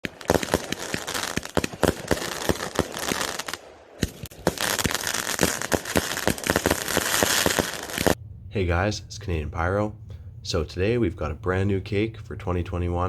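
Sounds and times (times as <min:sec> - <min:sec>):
firework bangs: 0:00.0 - 0:08.2
firework crackling: 0:00.0 - 0:08.2.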